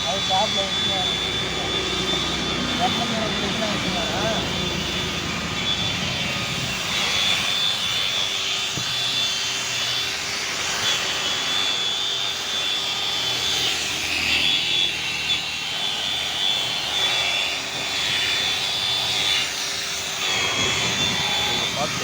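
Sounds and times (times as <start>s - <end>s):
car wash machine running: 0.0s - 22.0s.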